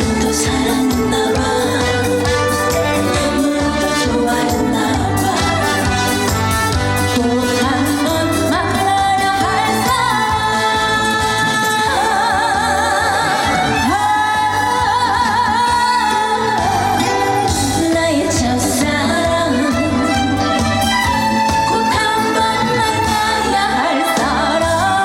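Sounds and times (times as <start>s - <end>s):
band backing music: 0.0s - 25.0s
woman singing with vibrato: 0.0s - 25.0s.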